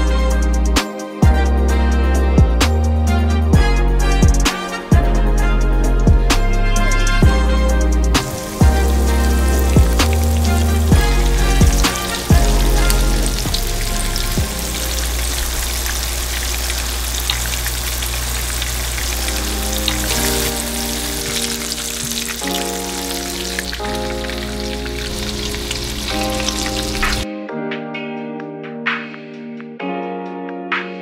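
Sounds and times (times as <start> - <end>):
fish frying in hot oil: 8.0 - 27.2.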